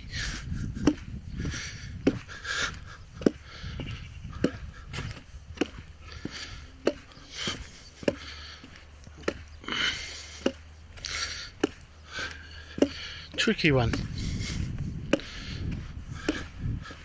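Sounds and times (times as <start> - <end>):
footsteps walking: 0.0 - 17.0
shoes scuffing: 3.2 - 17.0.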